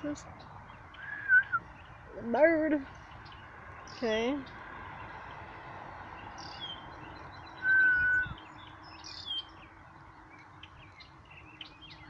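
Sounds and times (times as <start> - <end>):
songbirds chirping: 0.0 - 12.0
clear whistled bird note: 7.6 - 8.4.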